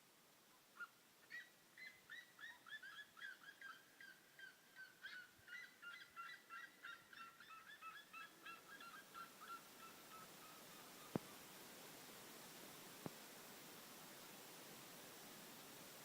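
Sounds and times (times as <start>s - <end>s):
birds calling faintly: 0.4s - 11.7s.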